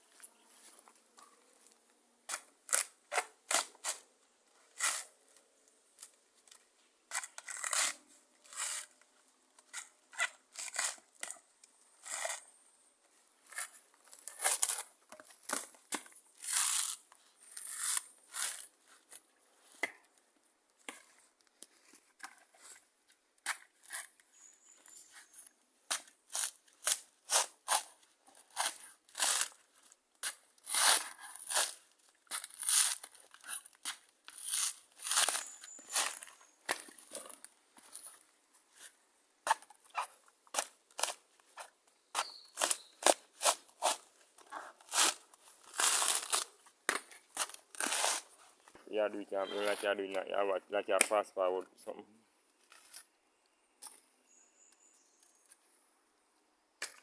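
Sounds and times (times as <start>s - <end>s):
sharp tearing and crunching: 16.4s - 19.2s, 25.9s - 38.2s, 39.5s - 48.6s.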